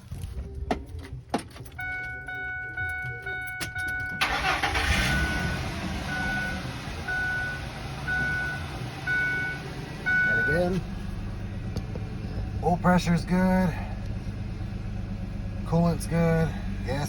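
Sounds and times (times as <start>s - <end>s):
truck engine cranking and idling: 0.0s - 17.0s
warning chime beeping: 1.8s - 10.9s.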